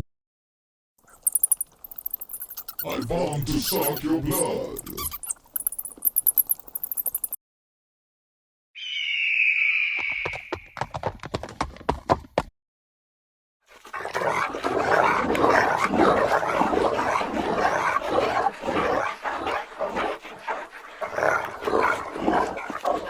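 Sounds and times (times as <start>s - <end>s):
dog-like racket: 1.0s - 7.4s, 13.8s - 23.0s
sharp clicks: 1.1s - 4.1s, 4.7s - 7.4s
creature screech: 2.0s - 5.3s.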